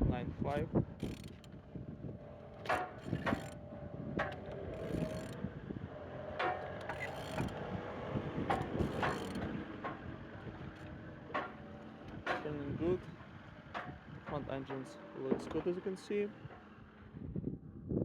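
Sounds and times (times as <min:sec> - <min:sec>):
engine knocks as it rotates: 0:00.8 - 0:17.4
wrench ratcheting and clicking: 0:01.0 - 0:01.5, 0:02.7 - 0:03.6, 0:04.7 - 0:05.4, 0:06.9 - 0:07.6, 0:08.5 - 0:09.4.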